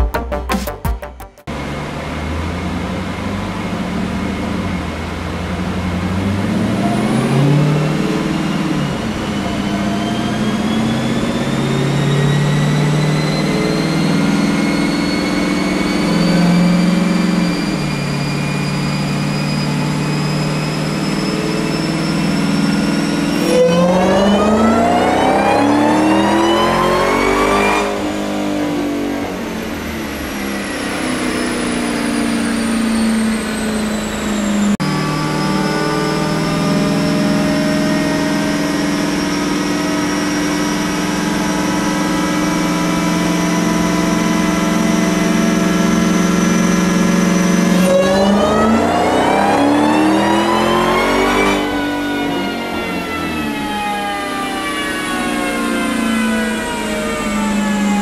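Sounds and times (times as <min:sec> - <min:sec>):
car engine on a dyno: 0:01.4 - 0:58.0.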